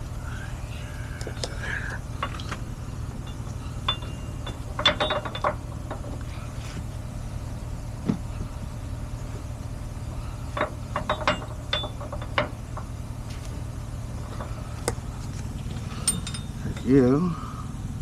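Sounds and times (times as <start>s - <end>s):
truck engine idling: 0.0s - 18.0s
tow chains clinking: 1.3s - 6.3s, 10.4s - 13.0s, 14.1s - 17.3s.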